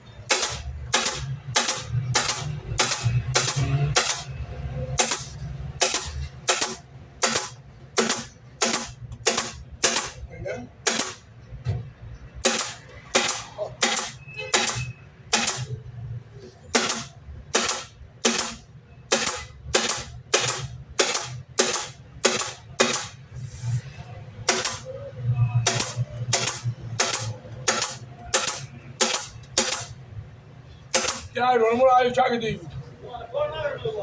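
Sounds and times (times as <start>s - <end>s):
nail gun firing: 0.2s - 4.4s, 5.0s - 10.2s, 10.8s - 11.3s, 12.4s - 15.8s, 16.7s - 23.2s, 24.4s - 24.9s, 25.6s - 30.0s, 30.9s - 31.4s.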